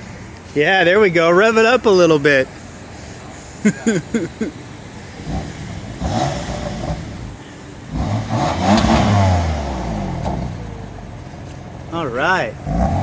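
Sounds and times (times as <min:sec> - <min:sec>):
car engine revving: 0:04.1 - 0:11.2, 0:11.8 - 0:13.0.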